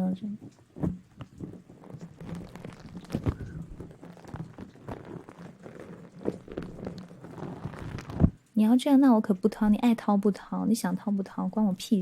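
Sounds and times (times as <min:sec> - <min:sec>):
soft taps and rustles: 0:00.0 - 0:08.4.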